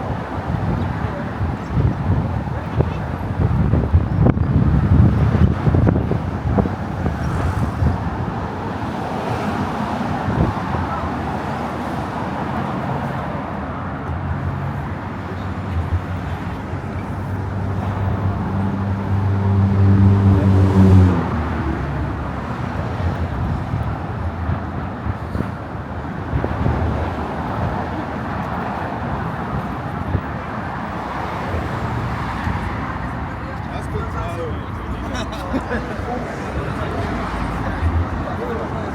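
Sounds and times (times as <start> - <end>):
road traffic noise: 0.0 - 38.9
vehicle passing with engine drone: 17.4 - 23.2.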